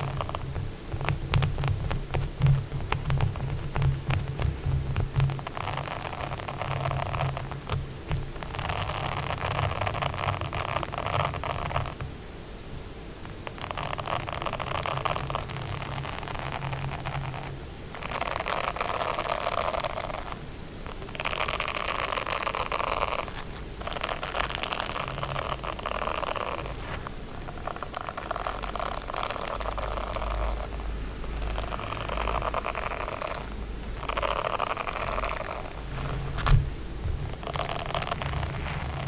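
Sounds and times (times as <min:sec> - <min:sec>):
rapid scratching on a surface: 0:00.0 - 0:12.0, 0:13.4 - 0:39.0.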